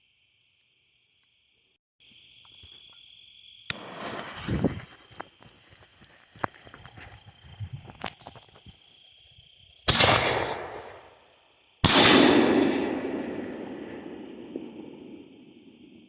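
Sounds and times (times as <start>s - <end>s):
crickets chirping: 0.0s - 16.0s
firework booms echoing: 11.8s - 16.0s.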